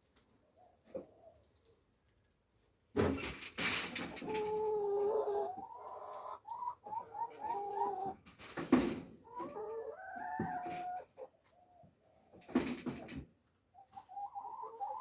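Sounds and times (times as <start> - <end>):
hens clucking: 4.0 - 15.0.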